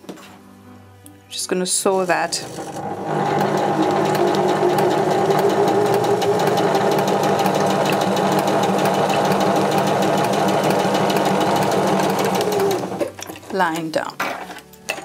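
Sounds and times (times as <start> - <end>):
sewing machine stitching: 2.1 - 13.2.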